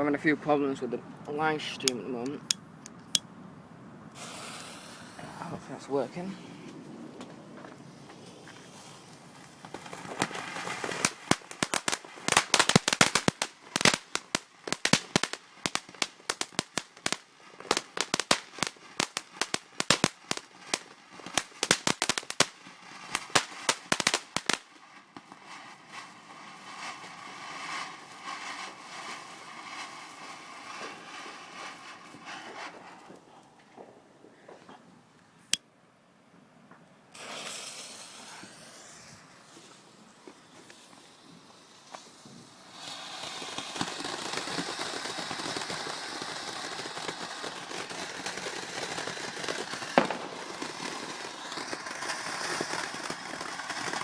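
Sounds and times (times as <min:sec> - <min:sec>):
steady hiss: 0:04.1 - 0:06.8, 0:37.1 - 0:54.0
fireworks bangs and crackles: 0:04.1 - 0:34.6, 0:37.1 - 0:54.0.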